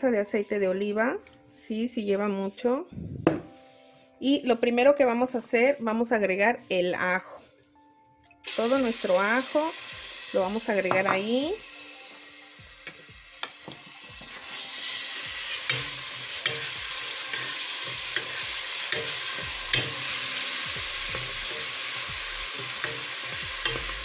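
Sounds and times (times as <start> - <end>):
garlic sizzling in hot oil: 8.4 - 24.0.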